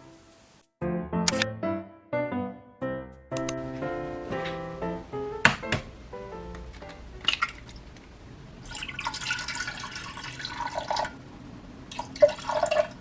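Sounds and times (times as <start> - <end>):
sharp click: 1.3 - 1.5, 3.4 - 3.6
liquid pouring into a container: 8.6 - 11.2, 11.9 - 13.0.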